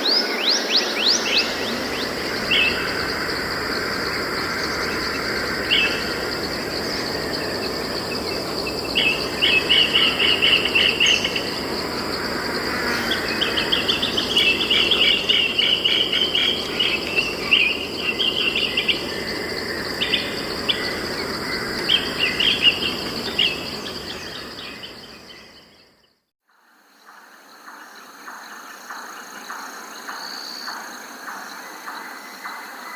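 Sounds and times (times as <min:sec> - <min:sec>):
insect drone: 0:00.0 - 0:32.9
songbird trilling: 0:00.4 - 0:11.9, 0:12.7 - 0:25.6.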